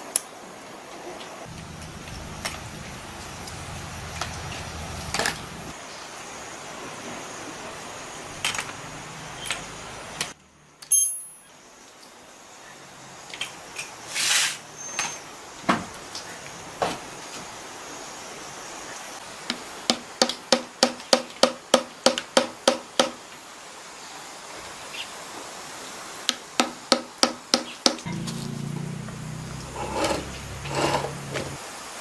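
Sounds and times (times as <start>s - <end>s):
low hum: 1.5s - 5.7s, 28.1s - 31.6s.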